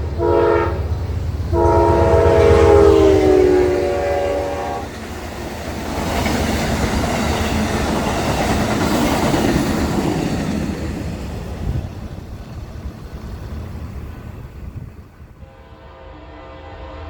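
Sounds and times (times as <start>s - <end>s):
train wheels on rails: 0.0s - 15.5s
locomotive air horn chord: 0.1s - 4.9s, 15.4s - 17.0s.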